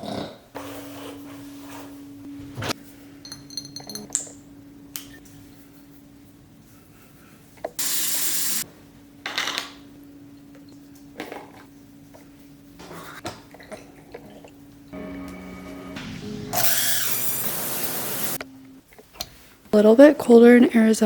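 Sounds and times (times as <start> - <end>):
steady low hum: 0.5 - 7.8
tap water running: 16.6 - 18.4.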